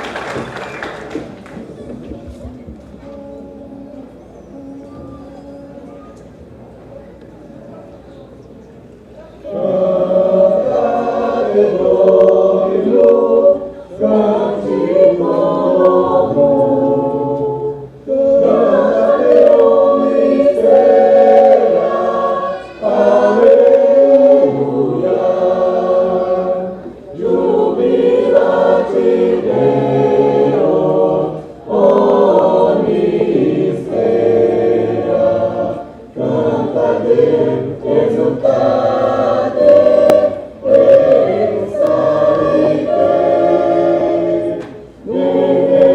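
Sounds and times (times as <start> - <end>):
choir singing in harmony: 9.4 - 45.9.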